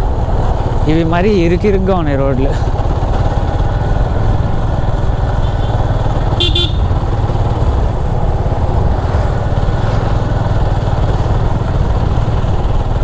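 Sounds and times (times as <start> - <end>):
motorcycle engine running: 2.6 - 13.0
wind noise on microphone: 6.3 - 13.0.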